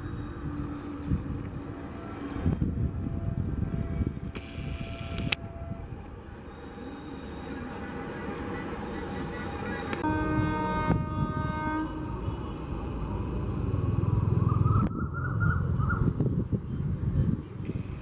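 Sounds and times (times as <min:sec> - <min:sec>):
low rumble of approaching train: 0:00.0 - 0:18.0
locomotive air horn: 0:08.5 - 0:12.6.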